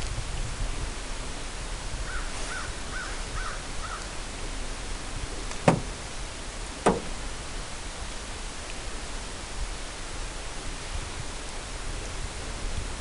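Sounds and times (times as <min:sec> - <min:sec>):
steady outdoor hiss: 0:00.0 - 0:13.0
sharp knocks: 0:05.6 - 0:06.0, 0:06.8 - 0:07.2.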